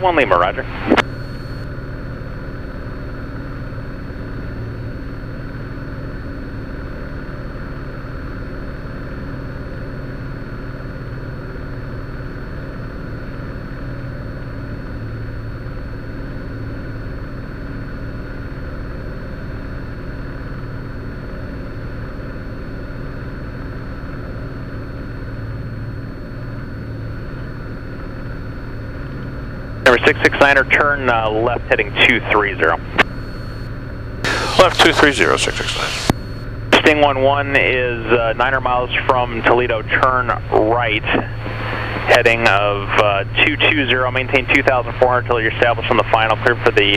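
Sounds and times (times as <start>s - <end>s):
propeller plane engine droning: 0.0s - 46.9s.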